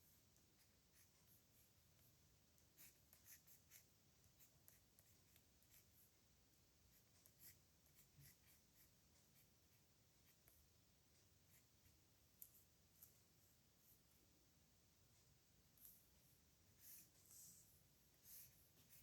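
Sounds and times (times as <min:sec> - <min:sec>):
pen nib scratching on paper: 0:00.6 - 0:06.1, 0:18.2 - 0:19.0.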